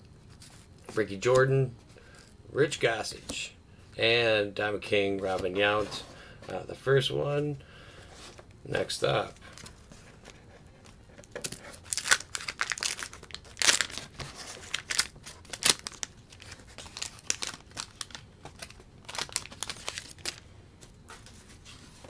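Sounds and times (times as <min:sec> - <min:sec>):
wax paper wrapper crackling: 0:09.0 - 0:22.0.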